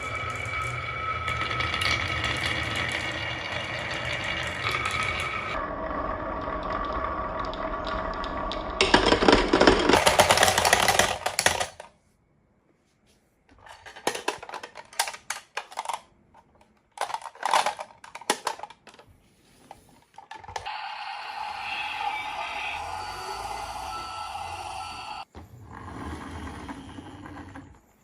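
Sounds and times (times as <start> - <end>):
marbles rolling down wooden run: 0.0 - 11.7.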